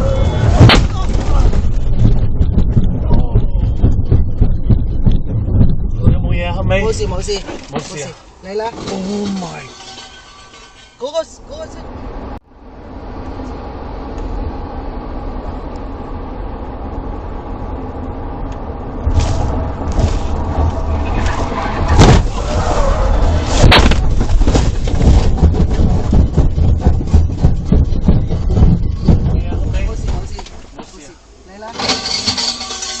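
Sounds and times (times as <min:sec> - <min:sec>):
vehicle engine and road noise: 0:00.0 - 0:33.0
loud bangs and knocks: 0:00.4 - 0:07.9, 0:19.1 - 0:30.8.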